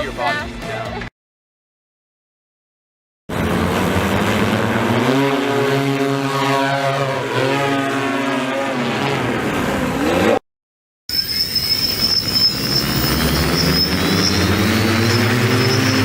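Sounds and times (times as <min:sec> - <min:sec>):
propellers humming: 0:03.3 - 0:10.4, 0:11.9 - 0:16.0.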